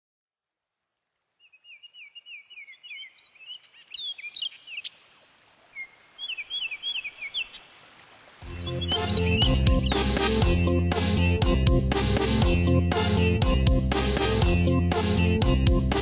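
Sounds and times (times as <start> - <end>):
faint outdoor hiss: 0.4 - 10.4
higher bird chirps: 1.4 - 7.7, 8.5 - 11.0
bird whistling descending notes: 8.5 - 10.8.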